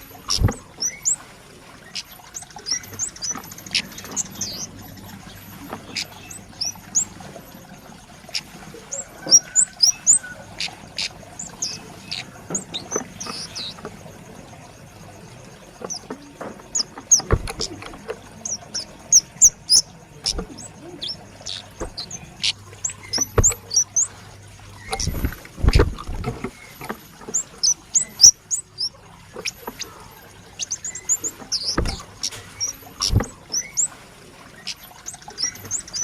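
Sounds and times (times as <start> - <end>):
bird sharp high chirps: 9.0 - 13.8, 18.4 - 24.2
clicks and knocks: 15.8 - 18.2, 22.8 - 24.1.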